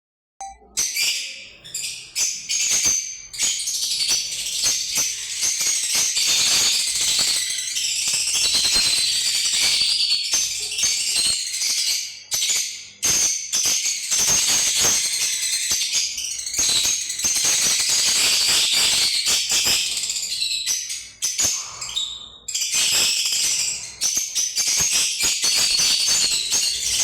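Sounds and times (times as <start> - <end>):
lovebirds chattering: 14.9 - 27.0.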